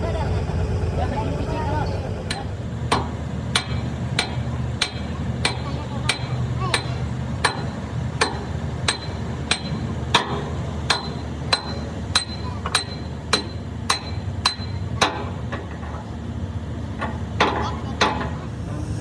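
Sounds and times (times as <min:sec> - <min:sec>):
steady low hum: 0:00.0 - 0:03.5, 0:17.9 - 0:19.0.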